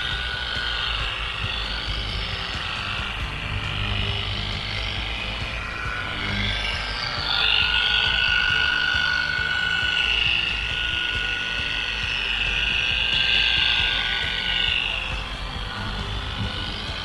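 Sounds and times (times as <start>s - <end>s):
electric buffer whining: 0.0s - 17.0s.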